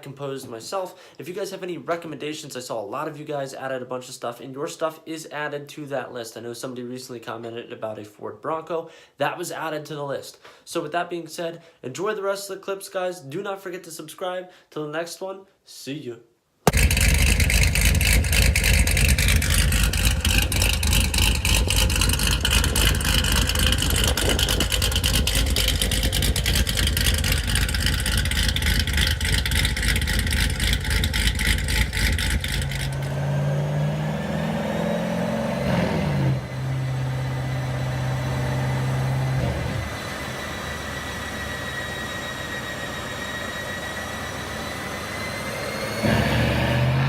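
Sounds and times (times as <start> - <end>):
car engine idling and revving: 16.7 - 47.0
car engine running hard: 16.7 - 47.0.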